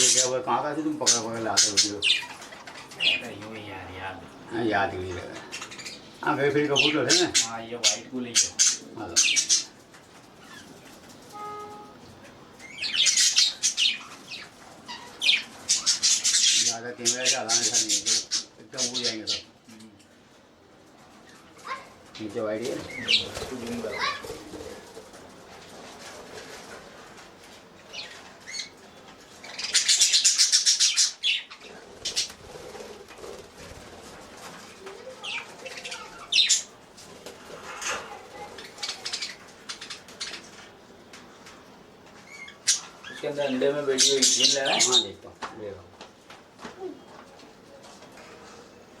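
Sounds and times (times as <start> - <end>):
budgerigars chirping: 0.0 - 3.8, 5.2 - 9.8, 12.1 - 19.5, 29.4 - 32.4, 35.2 - 36.7, 42.3 - 45.2
short steady tone: 11.3 - 12.1
bird wings flapping: 23.1 - 27.3.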